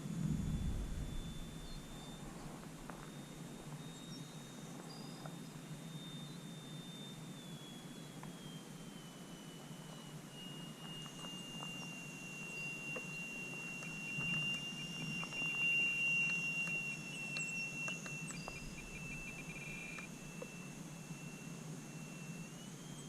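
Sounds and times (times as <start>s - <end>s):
model airplane motor whining: 5.0s - 23.0s.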